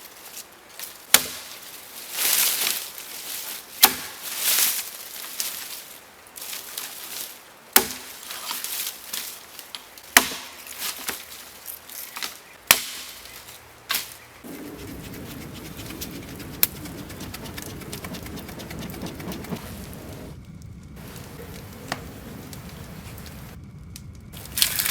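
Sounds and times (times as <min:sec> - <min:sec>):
steady hiss: 0:00.0 - 0:20.4, 0:21.0 - 0:23.6
wood being chopped: 0:01.1 - 0:01.6, 0:03.8 - 0:04.4, 0:07.8 - 0:08.9, 0:09.8 - 0:14.9.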